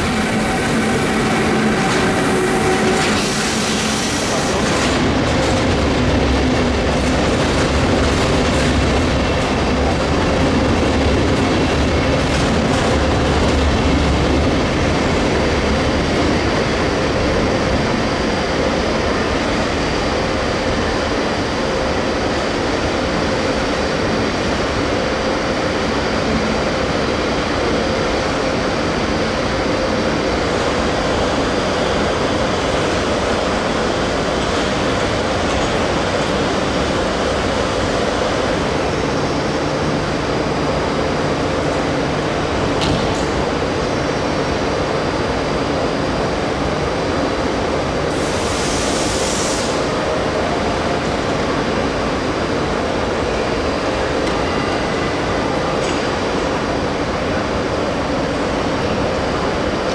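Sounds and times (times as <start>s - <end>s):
clickety-clack of rails: 0.0s - 18.1s, 30.4s - 43.9s, 53.6s - 59.9s
train wheels on rail: 0.0s - 59.9s.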